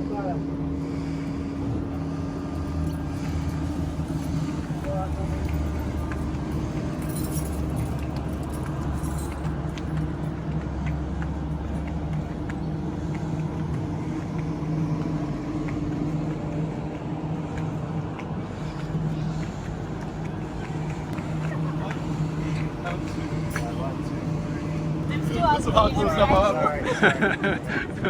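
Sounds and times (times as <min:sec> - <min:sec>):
train hum and rumble: 0:00.0 - 0:28.0.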